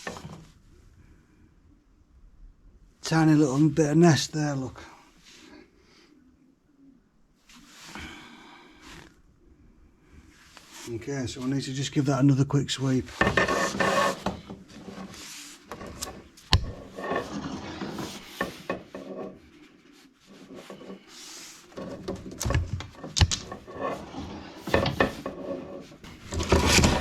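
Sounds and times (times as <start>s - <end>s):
brush scraping inside chimney: 13.1s - 27.0s.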